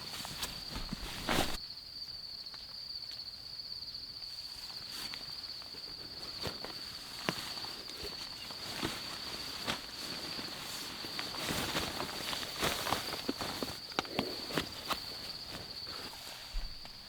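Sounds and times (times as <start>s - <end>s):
brief rustle: 0.0s - 1.6s.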